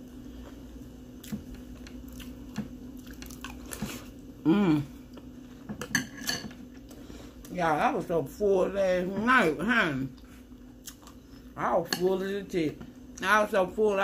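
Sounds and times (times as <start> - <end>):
chewing cereal in milk: 1.2 - 4.1
short voiced hum: 4.4 - 5.0.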